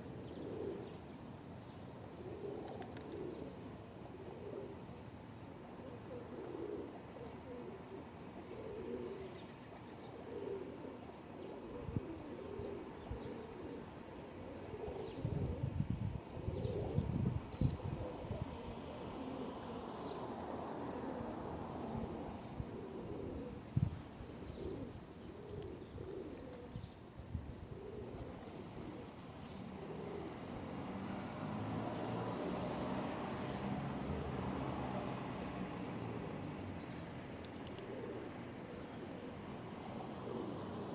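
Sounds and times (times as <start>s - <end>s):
pigeons cooing: 0.0s - 1.0s, 2.1s - 4.9s, 5.6s - 26.9s, 27.6s - 30.6s, 36.2s - 40.9s.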